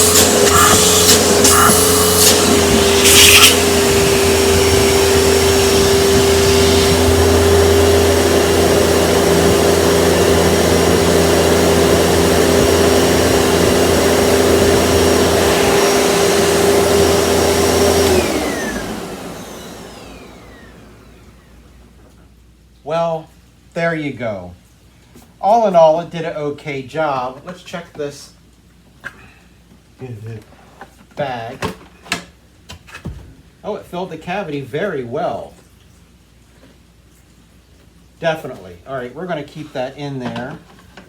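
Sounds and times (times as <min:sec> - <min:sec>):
vacuum cleaner running on carpet: 0:00.0 - 0:21.8
vacuum motor winding down: 0:00.0 - 0:21.9.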